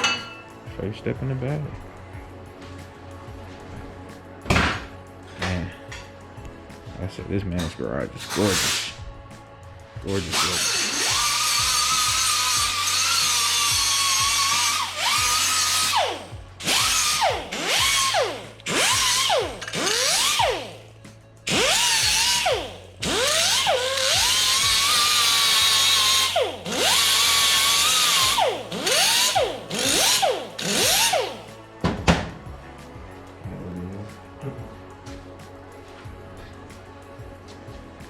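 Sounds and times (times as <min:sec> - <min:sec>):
electric drill on metal pipe: 0:10.1 - 0:20.9, 0:21.5 - 0:31.5.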